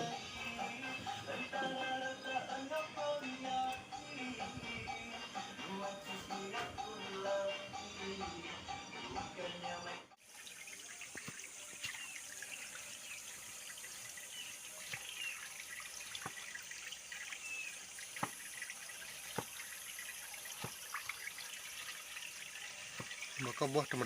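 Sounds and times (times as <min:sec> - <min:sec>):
music: 0:00.0 - 0:10.2
running water: 0:10.2 - 0:24.0.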